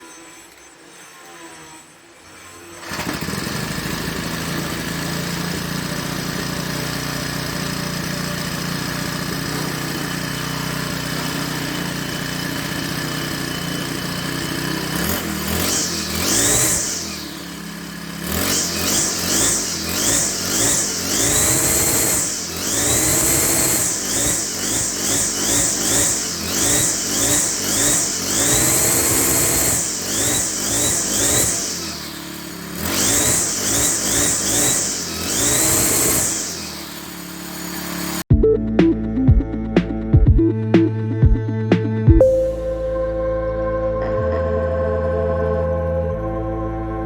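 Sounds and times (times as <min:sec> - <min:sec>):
string trimmer engine revving: 0:02.7 - 0:38.3.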